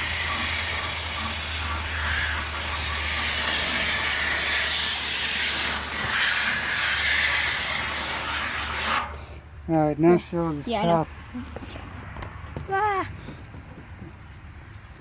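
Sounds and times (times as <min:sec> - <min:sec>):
hose water spraying on coils: 0:00.0 - 0:09.5.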